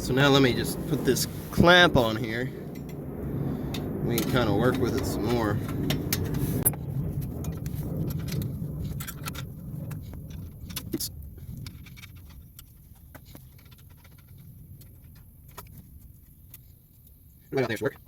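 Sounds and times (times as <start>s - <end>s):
low rumble: 0.0s - 13.1s
metal clamp clinking and rattling: 7.4s - 15.8s.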